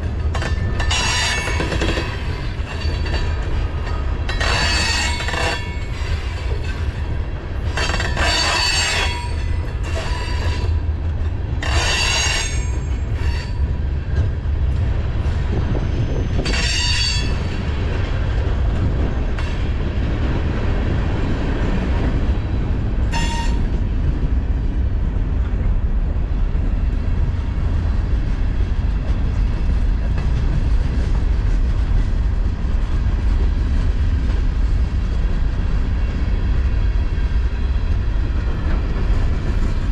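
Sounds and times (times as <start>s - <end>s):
freight train rumbling past: 0.0s - 39.9s
steel wheel squeal: 0.5s - 3.1s, 4.4s - 6.4s, 7.7s - 10.8s, 11.6s - 13.7s, 15.7s - 17.6s, 23.1s - 23.8s.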